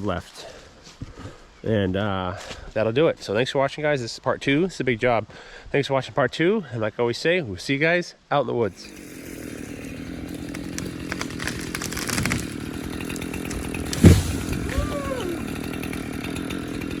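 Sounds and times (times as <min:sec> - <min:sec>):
chainsaw engine running: 0:08.7 - 0:17.0.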